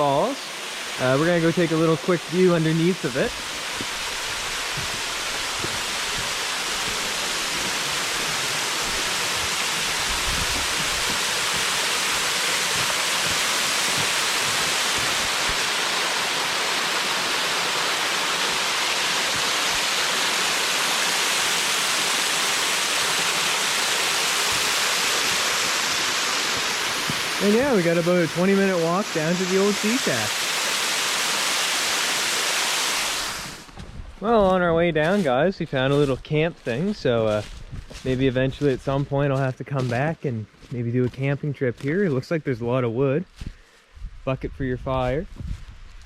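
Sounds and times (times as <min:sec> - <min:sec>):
waterfall rushing: 0:00.0 - 0:33.7.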